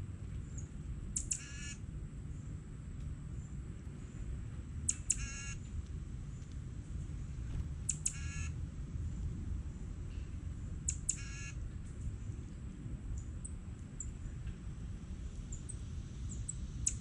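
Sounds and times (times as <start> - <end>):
steady low rumble: 0.0 - 17.0
bird harsh call: 1.2 - 1.8, 4.9 - 5.6, 7.9 - 8.5.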